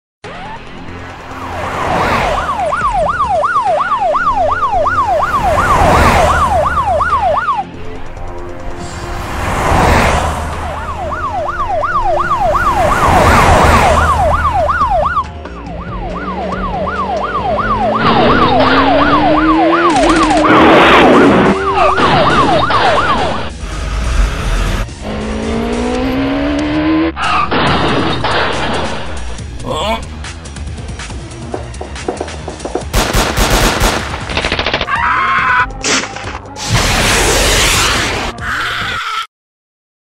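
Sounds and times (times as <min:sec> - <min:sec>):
police siren yelping: 0:01.3 - 0:07.7, 0:10.5 - 0:23.6
whooshing rushes: 0:08.4 - 0:14.9, 0:17.8 - 0:26.4
car engine revving: 0:08.6 - 0:15.0, 0:15.9 - 0:29.5.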